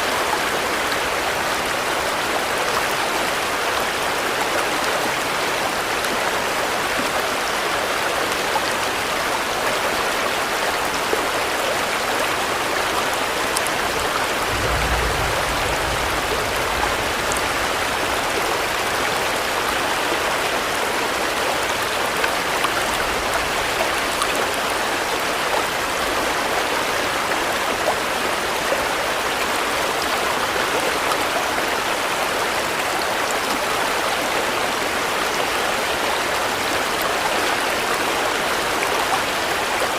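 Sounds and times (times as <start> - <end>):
steady rain falling: 0.0 - 39.9
low rumble: 13.7 - 20.1.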